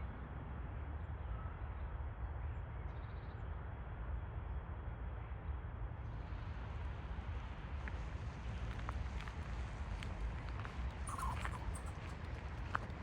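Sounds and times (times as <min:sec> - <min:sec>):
faint short chirp: 0:11.1 - 0:12.2.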